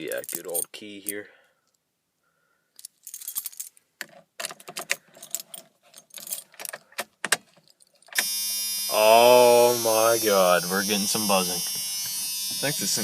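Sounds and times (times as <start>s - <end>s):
keys jangling on key ring: 2.8s - 3.7s, 4.7s - 6.8s.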